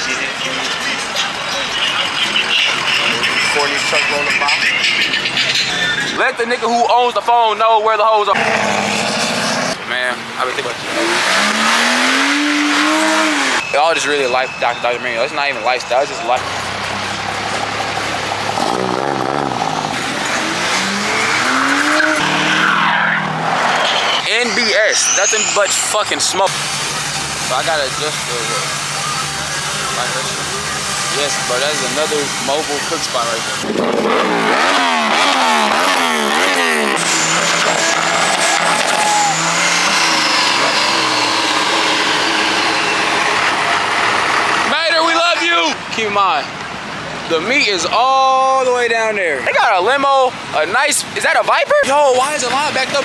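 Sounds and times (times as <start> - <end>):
engine revving: 8.3 - 9.9, 10.5 - 13.6, 16.4 - 45.7
tires squealing: 8.3 - 45.8
high whine falling in pitch: 23.7 - 27.9.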